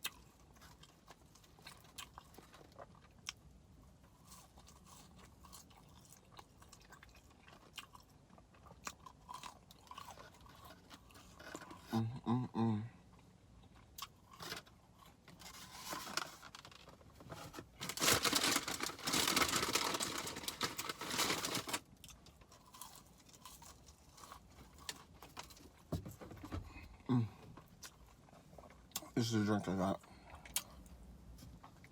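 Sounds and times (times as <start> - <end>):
paper packaging rustling: 15.4 - 21.8.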